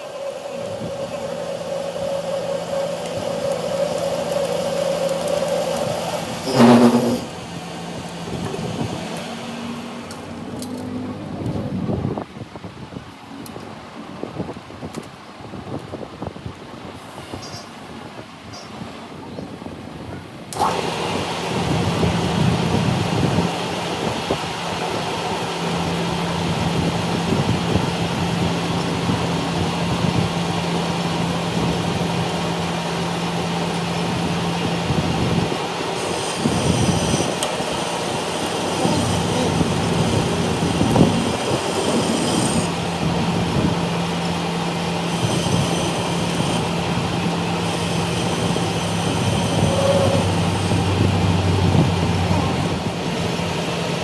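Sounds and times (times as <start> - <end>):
machinery humming: 0.0 - 12.1, 20.6 - 54.0
high metallic squeal: 0.3 - 7.5, 36.0 - 42.8, 45.0 - 46.8, 47.4 - 51.4.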